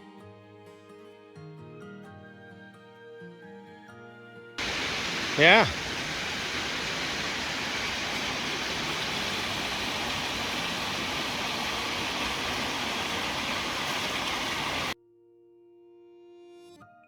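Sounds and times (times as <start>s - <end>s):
rushing water: 4.6s - 15.0s.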